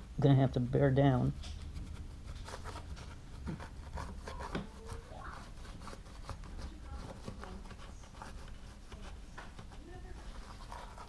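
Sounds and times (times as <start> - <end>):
rotary cutter scraping rubber: 1.6 - 9.1.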